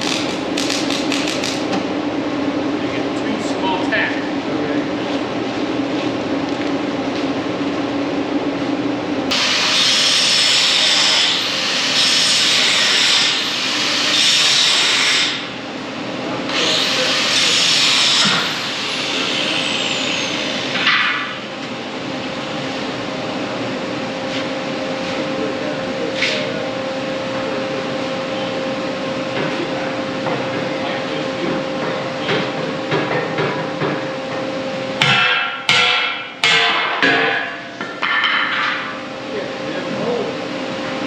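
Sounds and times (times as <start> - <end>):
steady machine hum: 0.0 - 41.0
angle grinder grinding metal: 9.3 - 15.5.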